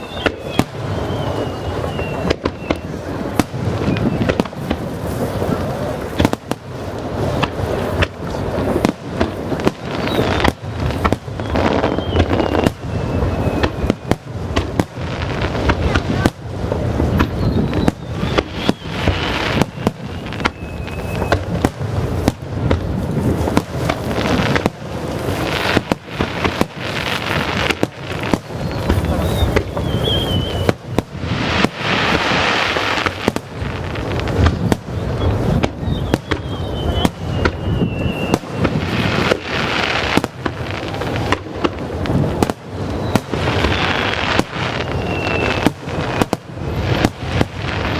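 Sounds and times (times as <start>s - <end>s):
fireworks bursting: 0.0s - 47.9s
fireworks whistle sliding downward: 28.7s - 30.8s.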